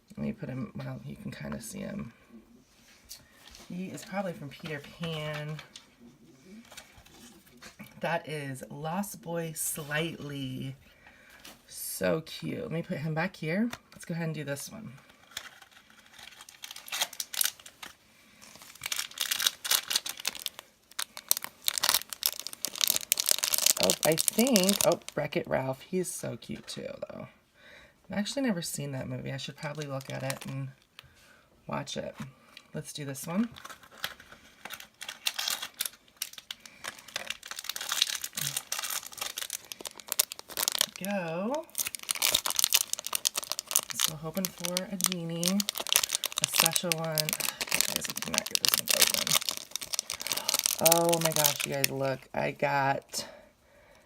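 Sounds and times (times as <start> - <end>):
package crinkling and tearing: 15.1 - 25.2, 29.6 - 31.0, 33.4 - 52.2.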